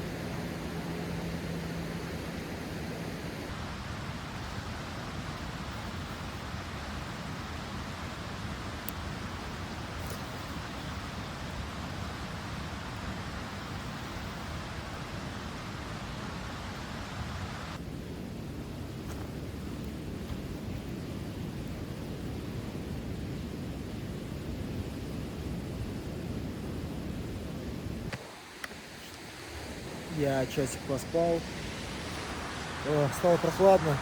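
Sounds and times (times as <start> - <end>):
steady rushing noise: 27.2 - 34.0.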